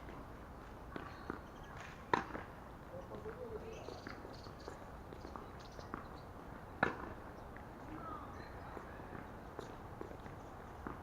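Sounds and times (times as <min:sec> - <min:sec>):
distant ball hits and bounces: 0:00.9 - 0:02.5, 0:06.8 - 0:07.2
racket hitting tennis ball: 0:01.8 - 0:02.5, 0:06.8 - 0:07.1.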